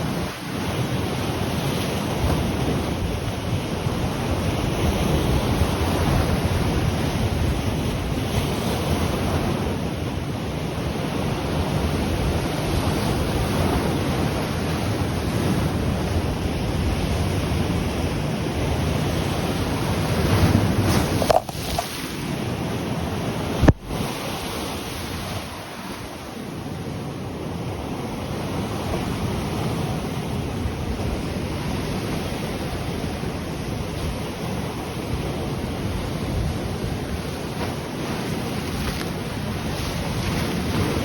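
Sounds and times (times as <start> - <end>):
wind buffeting microphone: 0.0 - 26.3
ocean waves breaking on shore: 0.0 - 41.0.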